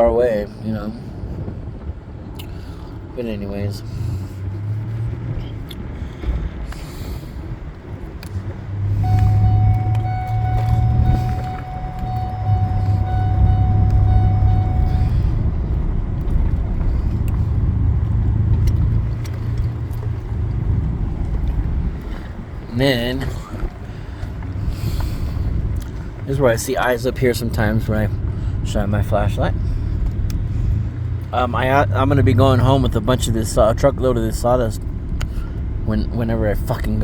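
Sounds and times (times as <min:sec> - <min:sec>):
vehicle engine running: 0:01.0 - 0:37.0
steady tone: 0:08.7 - 0:17.9.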